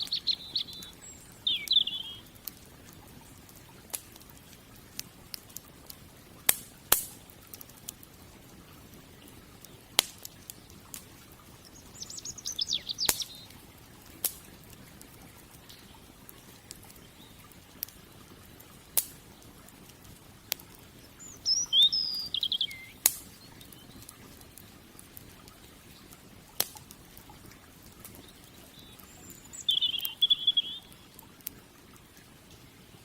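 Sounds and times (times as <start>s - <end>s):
small bird chirping: 0.0s - 2.5s, 11.7s - 13.6s, 21.0s - 24.1s, 28.1s - 31.1s
wood fire crackling: 0.0s - 33.0s.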